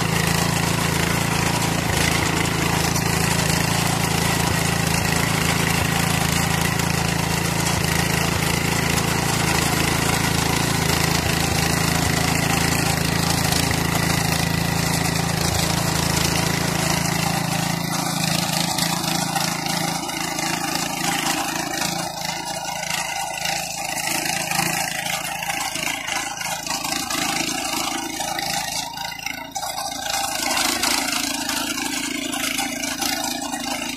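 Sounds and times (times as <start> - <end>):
petrol engine running: 0.0 - 33.9.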